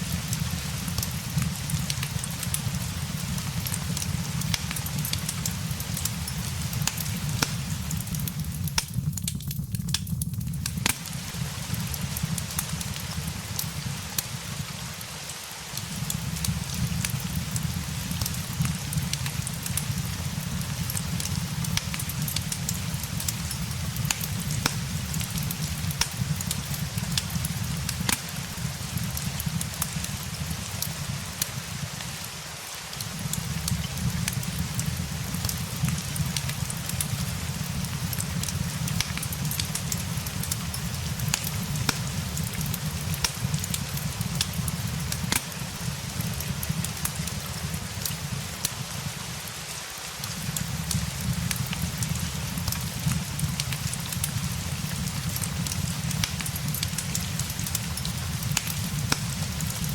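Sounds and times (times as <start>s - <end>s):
steady rain hiss: 0.0s - 59.9s
wood fire crackling: 0.0s - 59.9s.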